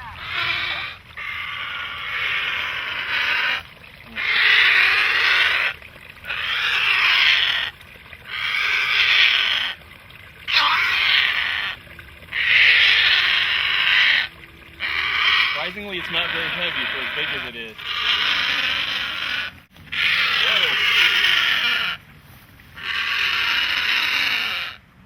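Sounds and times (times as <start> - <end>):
heron squawking: 0.0 - 9.8, 10.5 - 22.0, 22.8 - 24.8.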